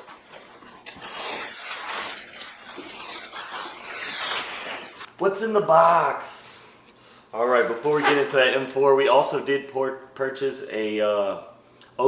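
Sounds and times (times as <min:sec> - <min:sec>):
packaging rustling and crinkling: 0:00.0 - 0:05.1, 0:07.4 - 0:08.5.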